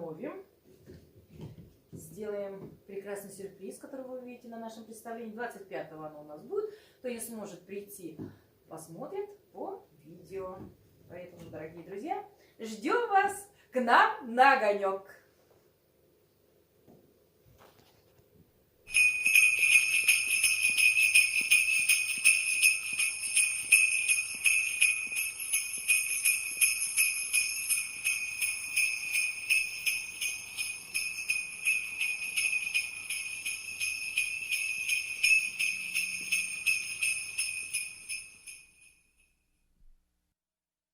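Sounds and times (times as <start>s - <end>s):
jingle bells shaken rapidly: 18.9s - 39.0s.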